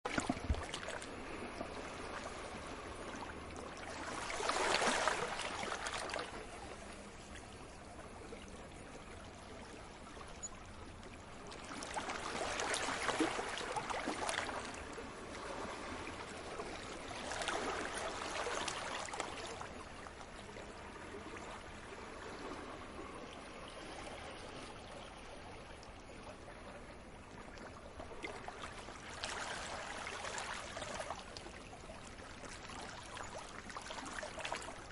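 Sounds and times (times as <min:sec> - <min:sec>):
ocean waves washing in: 0:00.1 - 0:06.5.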